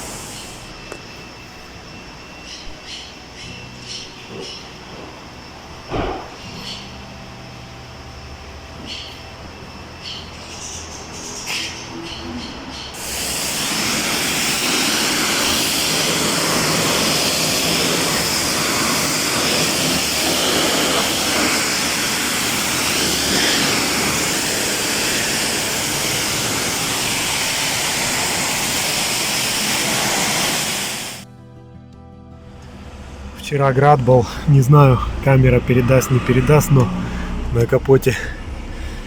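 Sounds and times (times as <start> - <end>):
pressure washer spraying water: 0.0 - 0.8, 13.0 - 31.2.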